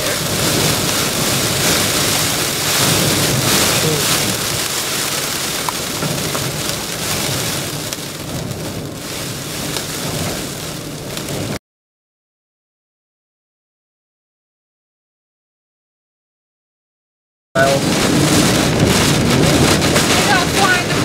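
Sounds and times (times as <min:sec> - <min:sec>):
heavy rain pelting a vehicle: 0:00.0 - 0:11.6, 0:17.6 - 0:21.0.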